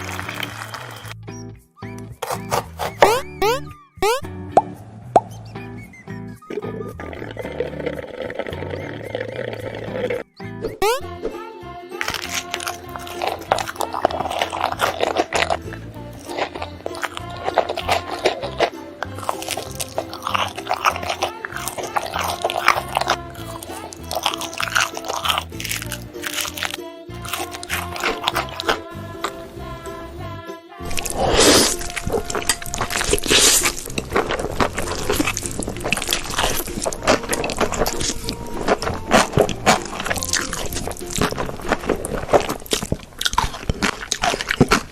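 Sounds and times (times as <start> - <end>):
background music: 0.0 - 43.6
crunchy chewing: 2.2 - 3.3, 12.0 - 29.4, 30.8 - 44.9.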